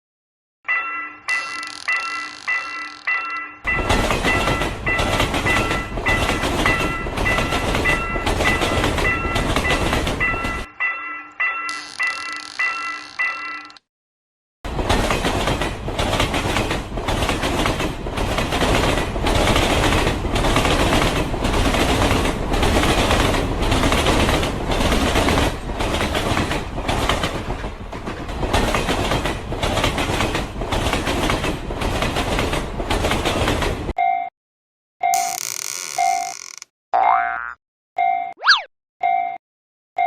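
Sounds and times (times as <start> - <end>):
train wheels clickety-clack: 3.7 - 10.7, 14.7 - 34.0.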